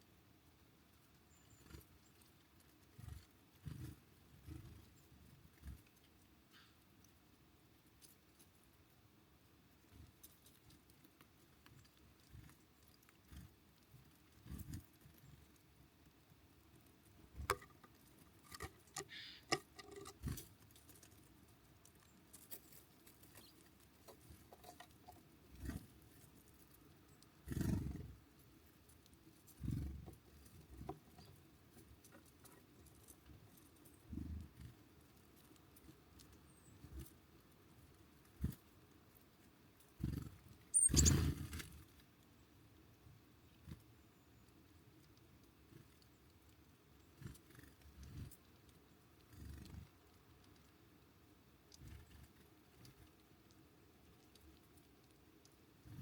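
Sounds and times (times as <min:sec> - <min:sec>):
bird chirp: 0:01.2 - 0:02.3, 0:19.0 - 0:19.6, 0:40.7 - 0:41.6.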